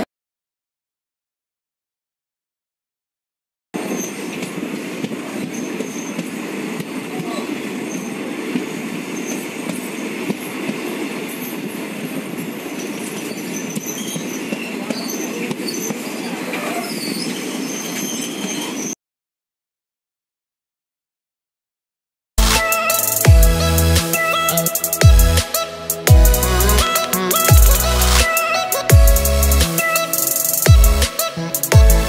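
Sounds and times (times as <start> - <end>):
train coach running on rails: 3.8 - 18.9
faint high wheel squeals: 5.4 - 6.3, 7.8 - 8.2, 12.4 - 19.0.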